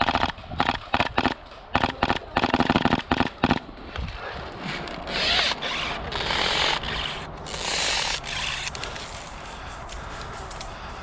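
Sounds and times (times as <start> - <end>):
rustling scraping friction: 0.0 - 11.0.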